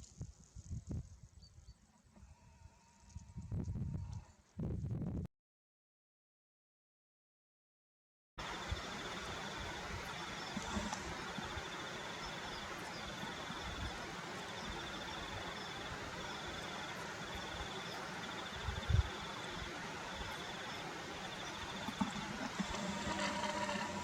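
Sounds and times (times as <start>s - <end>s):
insect chirping trills: 8.4s - 24.0s
outdoor hiss: 8.4s - 24.0s.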